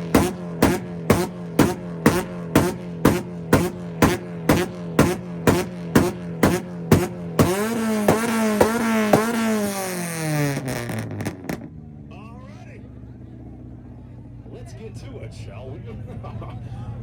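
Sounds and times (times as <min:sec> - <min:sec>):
exhaust popping and banging: 0:00.0 - 0:11.7
car engine revving: 0:00.0 - 0:14.6.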